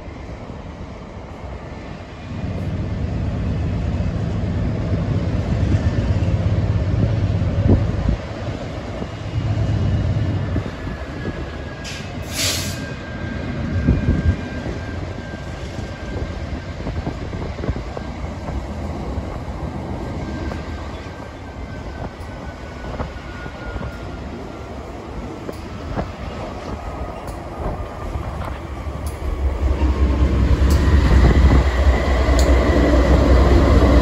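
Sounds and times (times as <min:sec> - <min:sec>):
diesel locomotive rumbling: 0:00.0 - 0:34.0
sharp hiss: 0:11.9 - 0:12.9.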